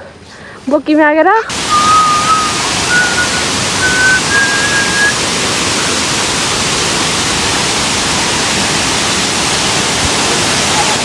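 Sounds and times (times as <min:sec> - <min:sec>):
waterfall rushing: 0:01.5 - 0:11.0
high whistled notes: 0:01.6 - 0:05.2.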